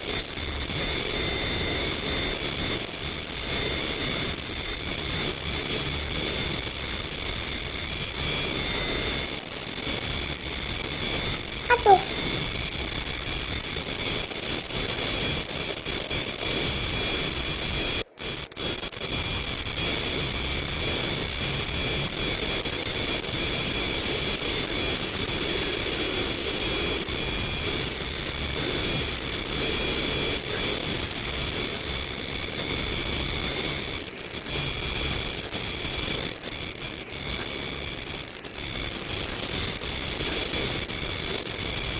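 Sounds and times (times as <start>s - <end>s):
faint high whining tones: 0.1s - 12.5s.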